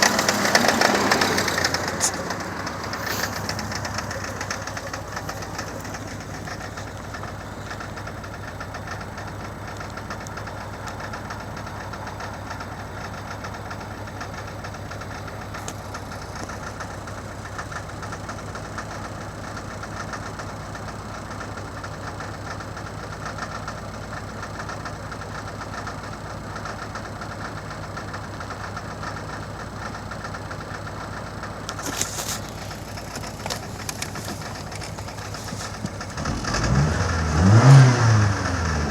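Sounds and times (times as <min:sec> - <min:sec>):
car engine idling roughly: 0:00.0 - 0:38.9
sharp clicks: 0:31.7 - 0:36.3.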